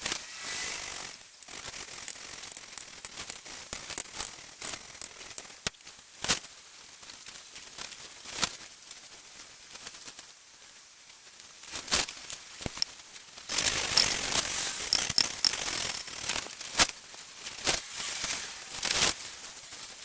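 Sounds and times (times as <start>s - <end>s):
gritty scraping of valve lapping: 1.4s - 5.5s, 13.6s - 16.2s
small clicks: 1.4s - 5.6s, 13.5s - 16.4s.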